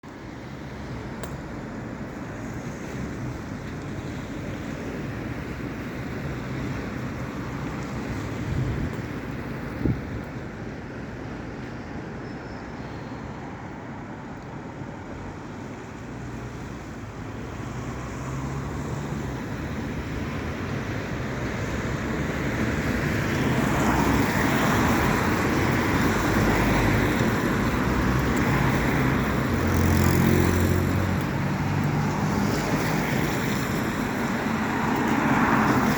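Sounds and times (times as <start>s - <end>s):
tyres hissing on wet road: 0.1s - 35.9s
vehicle engines running: 21.8s - 35.9s.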